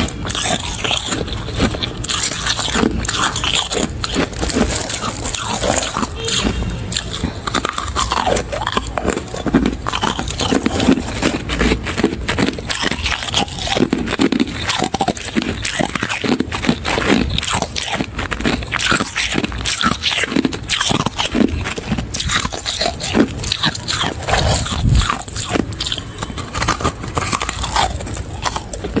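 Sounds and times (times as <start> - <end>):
person chewing crunchy frost: 0.0 - 29.0.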